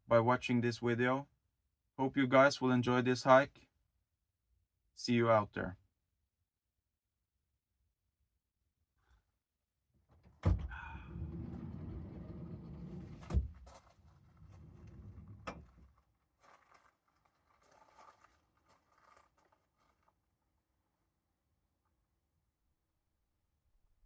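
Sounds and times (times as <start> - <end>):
vehicle door unlatching click: 10.2 - 13.8, 14.4 - 15.8
faint rustling: 10.3 - 20.2
vehicle door slamming shut: 10.4 - 12.4, 13.0 - 13.8
low rumbling movement: 10.5 - 15.9.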